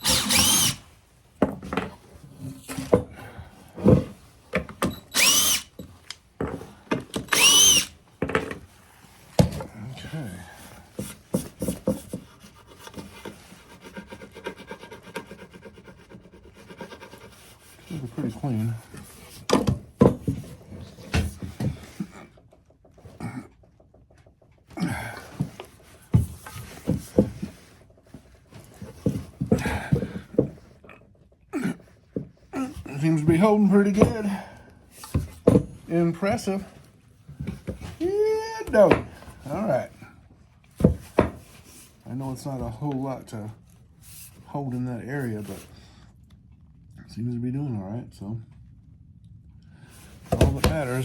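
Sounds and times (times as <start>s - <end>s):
cordless drill spinning: 0.0s - 0.8s, 4.9s - 5.8s, 7.2s - 8.0s
tools and wood clattering: 0.0s - 9.7s, 18.8s - 31.4s, 32.0s - 38.0s.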